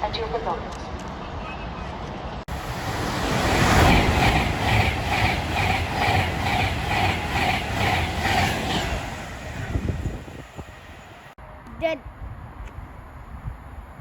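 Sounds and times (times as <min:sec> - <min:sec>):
train rumble: 0:02.4 - 0:11.4
train wheels clattering: 0:03.2 - 0:10.6.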